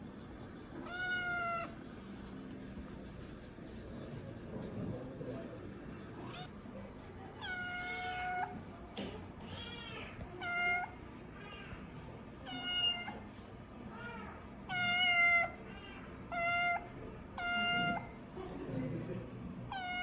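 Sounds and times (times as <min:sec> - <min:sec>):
kitten meowing: 0:00.8 - 0:01.8, 0:07.4 - 0:08.6, 0:09.5 - 0:11.0, 0:12.5 - 0:13.2, 0:14.0 - 0:15.6, 0:16.3 - 0:18.1, 0:19.7 - 0:20.0.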